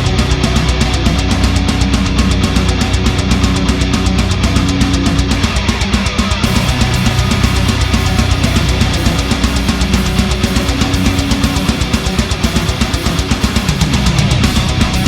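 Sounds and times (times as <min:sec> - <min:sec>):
heavy metal rock music: 0:00.0 - 0:15.0.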